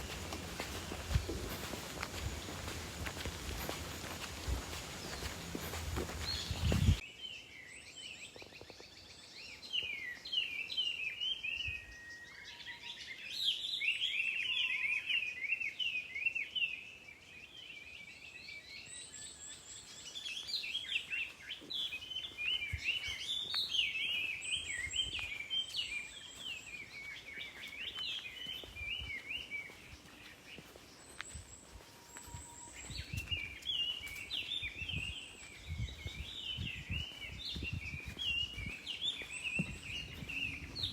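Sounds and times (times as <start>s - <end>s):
soft low thuds: 0.0s - 7.0s
songbirds chirping: 0.0s - 40.9s.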